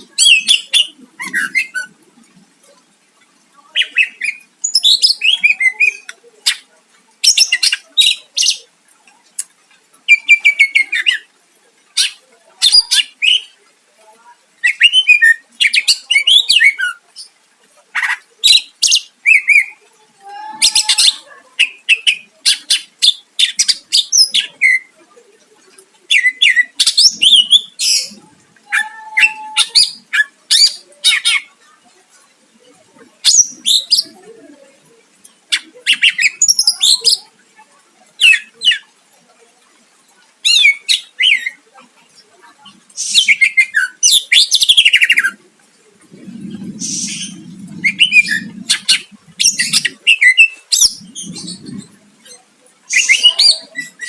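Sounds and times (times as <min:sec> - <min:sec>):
bird singing whistles and chatter: 0:00.0 - 0:02.0, 0:03.8 - 0:08.7, 0:18.0 - 0:19.8, 0:35.5 - 0:37.3, 0:40.4 - 0:41.6, 0:43.0 - 0:45.4, 0:46.4 - 0:54.0.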